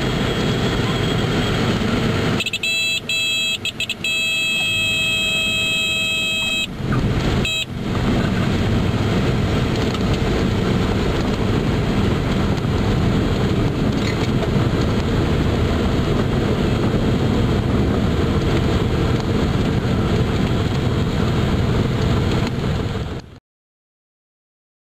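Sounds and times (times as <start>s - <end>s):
airplane engine drone: 0.0s - 23.4s
high multi-pitched tone: 2.4s - 6.7s.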